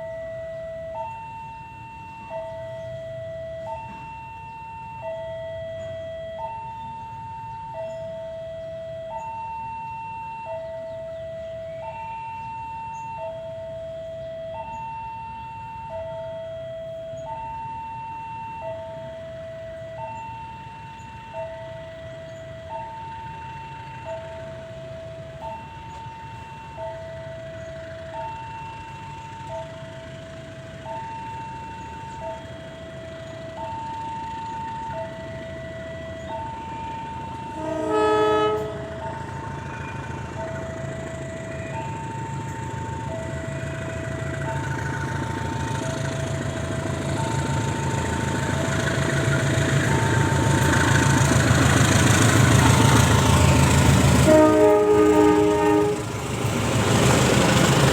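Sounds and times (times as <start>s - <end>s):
two-tone crossing alarm: 0.0s - 57.9s
train horn blast: 37.4s - 39.3s, 52.7s - 56.4s.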